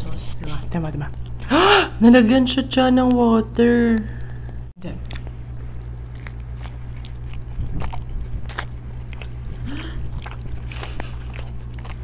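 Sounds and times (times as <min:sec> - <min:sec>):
low steady hum: 0:00.0 - 0:12.0
biting and chewing burger: 0:04.4 - 0:12.0.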